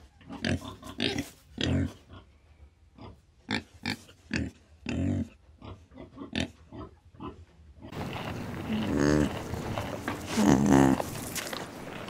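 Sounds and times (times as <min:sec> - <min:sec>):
peccaries grunting and huffing: 0:03.9 - 0:12.0.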